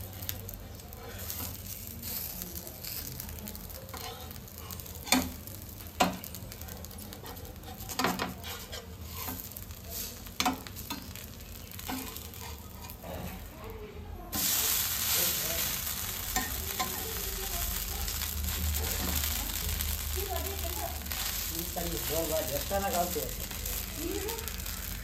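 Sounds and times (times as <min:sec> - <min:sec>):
batter sizzling on griddle: 0:00.0 - 0:25.0
metal spatula scraping pan: 0:07.3 - 0:11.2, 0:11.8 - 0:13.5.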